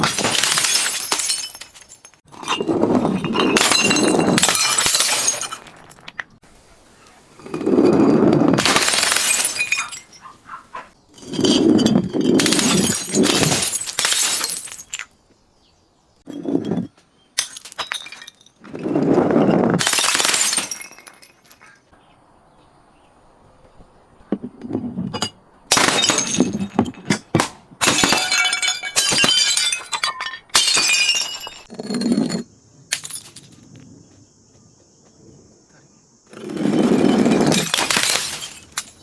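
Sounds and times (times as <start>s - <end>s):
glass bottles shattering: 0.0s - 6.4s, 8.6s - 10.3s, 11.1s - 15.1s, 16.3s - 18.6s, 19.8s - 21.8s, 25.2s - 33.5s, 36.5s - 39.0s.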